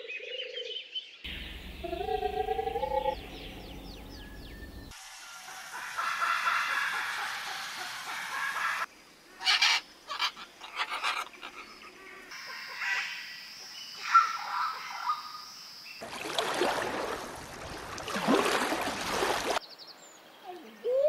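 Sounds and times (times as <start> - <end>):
high-pitched drone: 1.3 - 4.1
harsh bird squawks: 8.6 - 11.7.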